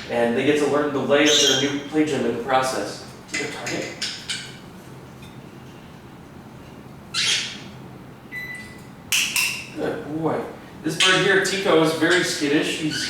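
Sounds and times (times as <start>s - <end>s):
parrot squawking: 1.2s - 1.9s, 7.1s - 7.8s.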